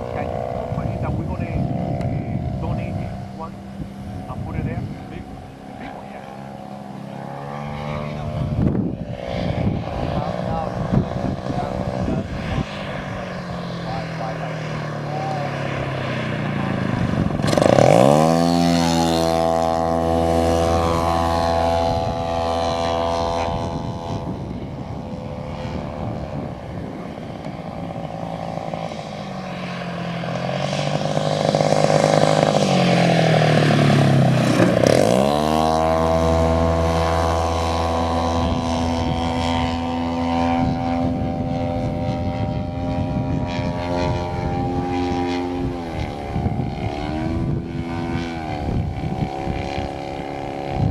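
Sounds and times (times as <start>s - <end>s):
model plane propeller engine flying past: 0.0s - 50.9s.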